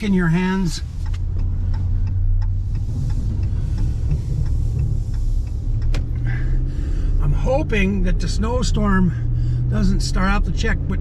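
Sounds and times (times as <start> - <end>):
pickup truck driving rumble: 0.0 - 11.0
faint light ticks: 0.6 - 6.4.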